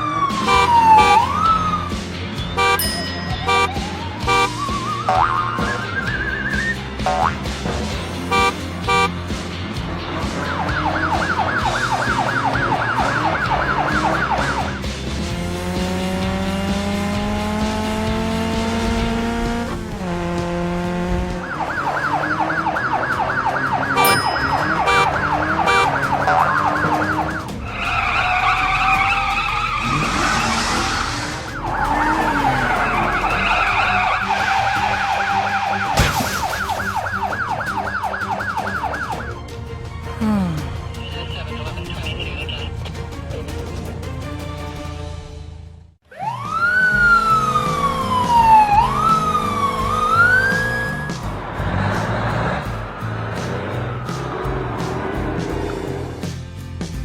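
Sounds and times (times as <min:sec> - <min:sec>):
rising engine-like whine: 0:00.0 - 0:07.3, 0:07.9 - 0:35.9, 0:46.1 - 0:56.5
cartoon siren warbling: 0:00.0 - 0:07.4, 0:10.6 - 0:14.7, 0:21.4 - 0:39.3, 0:46.1 - 0:51.2
background music: 0:00.0 - 0:57.0.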